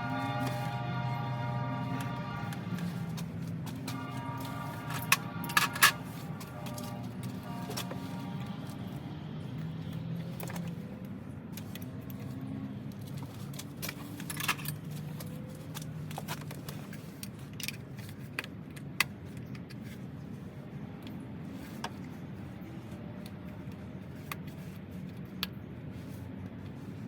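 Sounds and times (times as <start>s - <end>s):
metal tools clinking and rattling: 3.1s - 8.0s, 13.0s - 17.8s.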